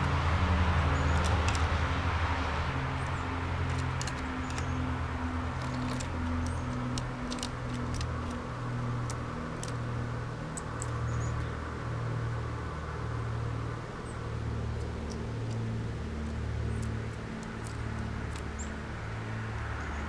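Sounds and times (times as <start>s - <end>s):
road traffic rumble: 0.0s - 20.0s
birds chirping: 2.8s - 8.4s, 10.5s - 11.6s.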